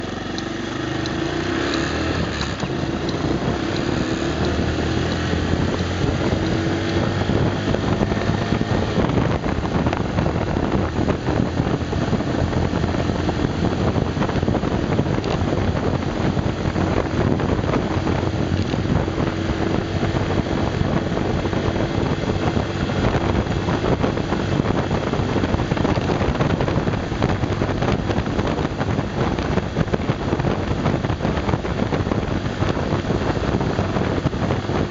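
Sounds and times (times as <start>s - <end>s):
small motorcycle engine running: 0.0s - 34.9s
wind rumble on microphone: 0.0s - 34.9s.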